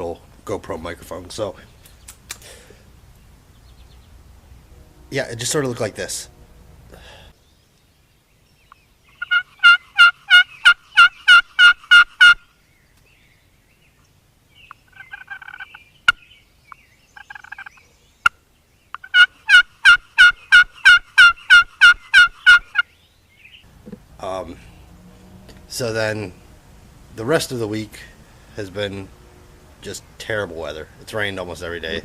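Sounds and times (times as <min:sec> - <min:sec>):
sharp clicks: 0:01.8 - 0:02.5
soft turkey calling: 0:08.6 - 0:12.4, 0:14.6 - 0:23.7
turkey call hen yelps: 0:09.1 - 0:12.4, 0:14.7 - 0:16.2, 0:19.0 - 0:22.9.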